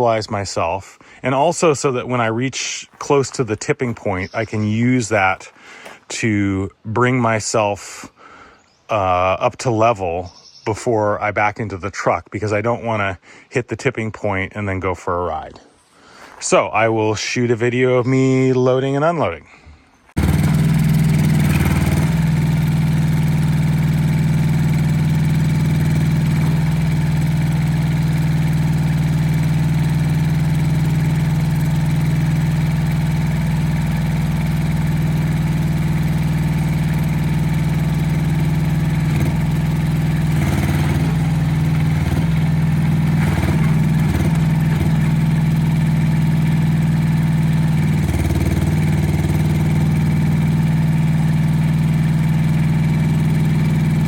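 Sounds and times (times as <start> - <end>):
excavator engine running: 1.2 - 6.1, 20.2 - 54.0.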